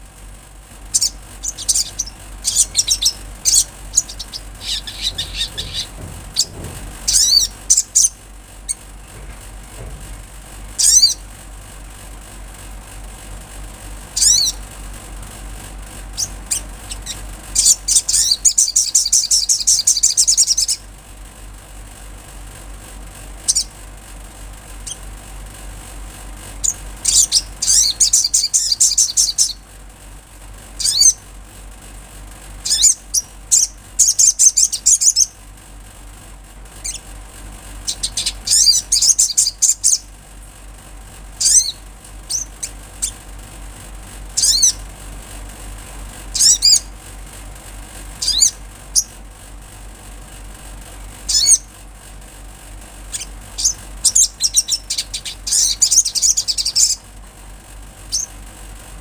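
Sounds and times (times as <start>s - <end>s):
steady low hum: 0.0s - 59.0s
bird twittering trills: 0.9s - 8.8s, 10.8s - 11.3s, 14.2s - 14.7s, 16.2s - 20.9s, 23.5s - 23.8s, 26.6s - 29.6s, 30.8s - 31.2s, 32.6s - 35.4s, 36.8s - 37.1s, 37.8s - 40.1s, 41.4s - 43.2s, 44.4s - 44.8s, 46.3s - 46.9s, 48.2s - 49.2s, 51.3s - 51.7s, 53.1s - 57.1s, 58.1s - 58.4s.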